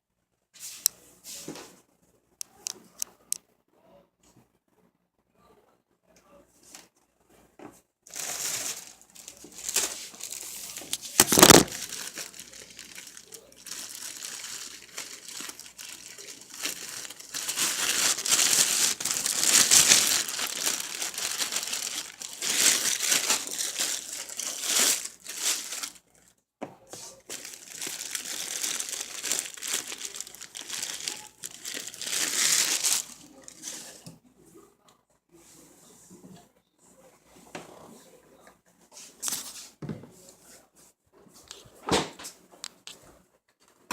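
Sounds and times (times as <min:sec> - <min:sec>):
plastic packaging crinkling: 0:08.1 - 0:26.0, 0:27.1 - 0:33.9.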